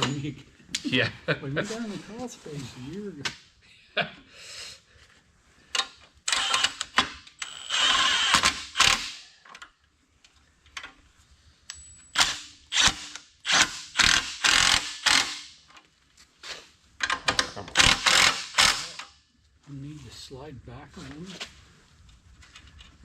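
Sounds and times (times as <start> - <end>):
ratchet wrench rasping: 6.3 - 9.2, 12.2 - 15.6, 17.8 - 19.1.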